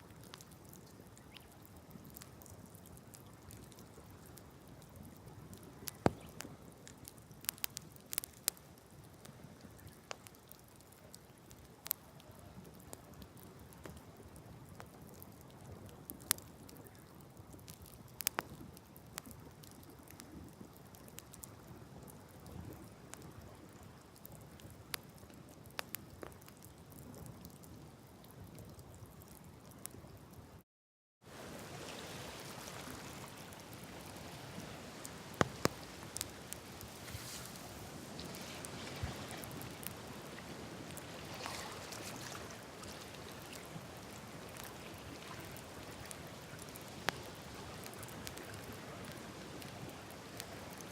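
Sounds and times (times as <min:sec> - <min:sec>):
campfire crackling and popping: 0:00.0 - 0:30.0, 0:31.3 - 0:50.9
steady hiss: 0:31.3 - 0:50.7.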